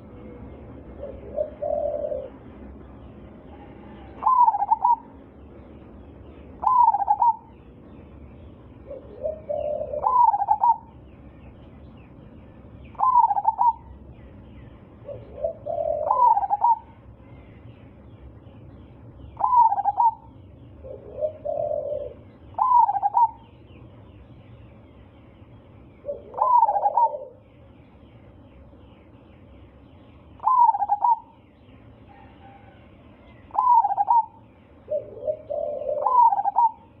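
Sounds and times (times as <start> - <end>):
dove cooing: 0.0 - 2.8, 3.4 - 5.2, 6.5 - 7.6, 8.8 - 11.0, 12.9 - 14.0, 14.8 - 17.5, 19.3 - 23.6, 26.0 - 27.5, 30.4 - 31.4, 32.1 - 37.0
soft low coo notes: 0.0 - 2.8, 8.8 - 10.9, 15.0 - 17.7, 19.4 - 23.4, 26.0 - 27.4, 32.1 - 37.0.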